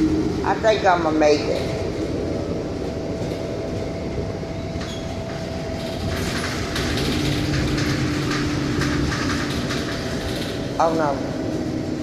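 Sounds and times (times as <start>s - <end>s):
bus engine and road rumble: 0.0s - 12.0s
cabin rattling: 2.9s - 11.9s.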